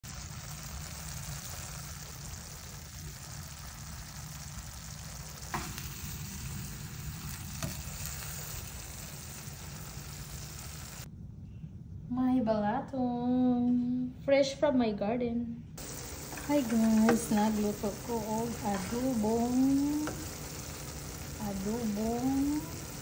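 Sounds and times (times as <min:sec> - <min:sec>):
food sizzling in a pan: 0:00.0 - 0:11.1, 0:15.8 - 0:23.0.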